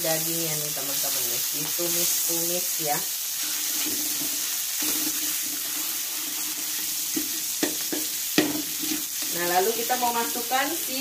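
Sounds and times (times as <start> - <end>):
meat sizzling in oil: 0.0 - 11.0
metal spatula scraping wok: 3.2 - 11.0.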